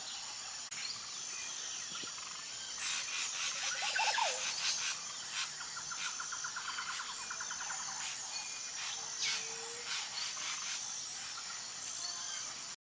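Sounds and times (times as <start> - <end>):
insect drone: 0.0 - 12.8
birds calling: 0.7 - 12.6
rapid repeated bird notes: 2.2 - 11.7.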